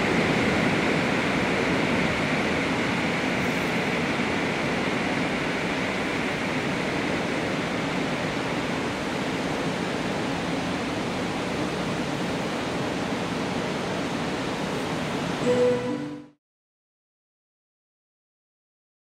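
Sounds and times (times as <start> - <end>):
electric train pulling away: 0.0 - 11.6, 13.8 - 16.4
high hiss: 0.0 - 16.4.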